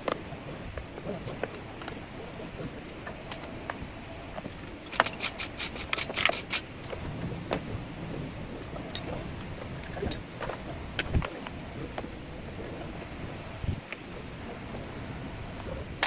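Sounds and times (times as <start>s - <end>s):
steady background hiss: 0.0s - 16.0s
sharp clicks: 4.8s - 6.7s.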